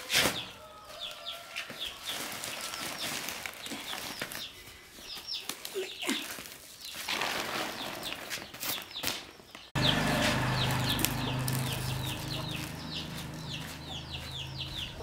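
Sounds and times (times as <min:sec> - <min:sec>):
birds chirping: 0:00.4 - 0:15.0.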